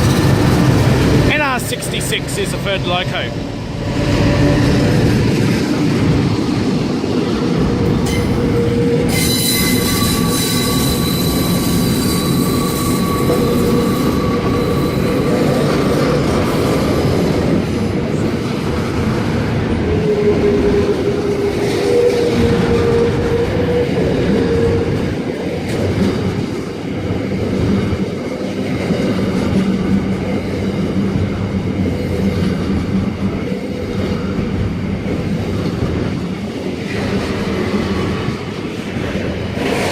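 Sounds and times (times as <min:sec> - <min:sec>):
train wheels clicking on rail joints: 0:00.0 - 0:02.6
train wheels squealing: 0:08.0 - 0:16.2.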